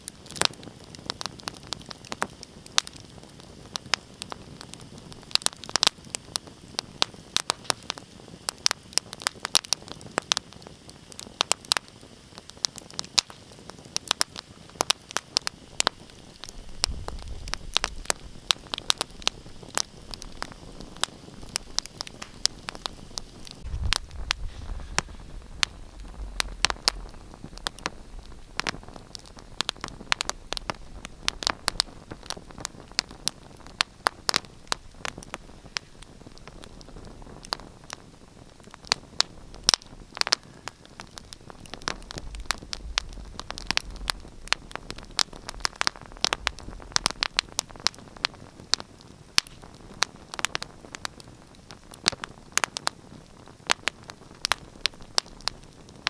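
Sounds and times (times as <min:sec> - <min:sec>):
wood fire crackling and popping: 0:00.0 - 0:56.0
low rumble: 0:23.6 - 0:32.3.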